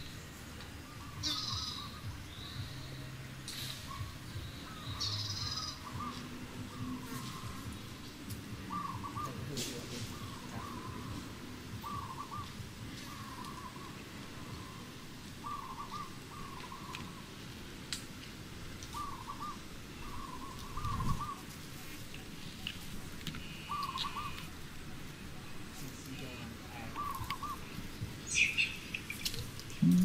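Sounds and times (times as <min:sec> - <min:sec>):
bird warbling call: 0:00.9 - 0:02.0, 0:03.8 - 0:07.8, 0:08.6 - 0:17.2, 0:18.9 - 0:21.4, 0:23.4 - 0:24.5, 0:26.7 - 0:30.0.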